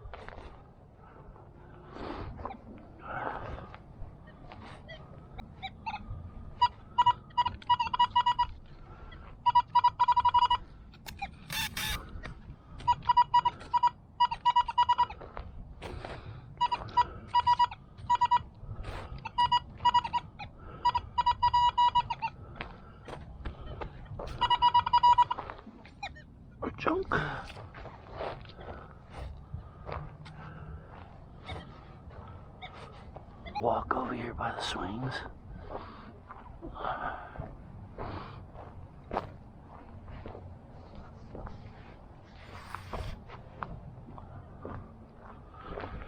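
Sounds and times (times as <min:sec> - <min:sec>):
metal detector beeping: 0:06.6 - 0:08.6, 0:09.4 - 0:12.1, 0:12.8 - 0:15.2, 0:16.6 - 0:18.5, 0:19.2 - 0:22.4, 0:24.2 - 0:26.3, 0:42.4 - 0:43.2
short rasping crunch: 0:11.0 - 0:12.1, 0:42.3 - 0:43.3.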